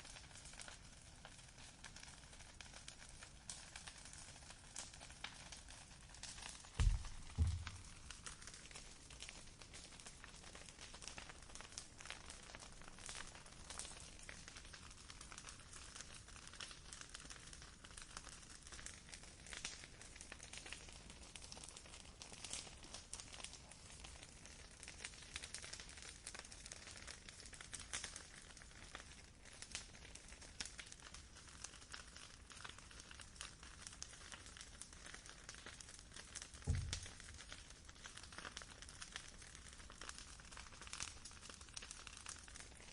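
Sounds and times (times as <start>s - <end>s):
campfire crackling: 0.0s - 42.9s
soft low thump: 6.8s - 8.1s, 36.7s - 37.3s.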